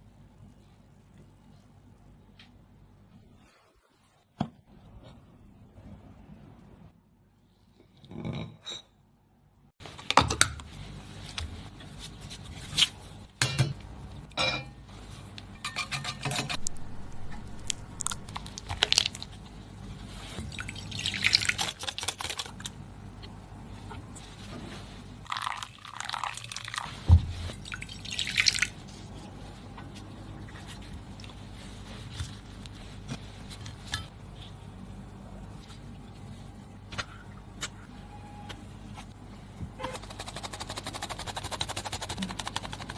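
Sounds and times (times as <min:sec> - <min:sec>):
low steady hum: 0:09.5 - 0:42.9.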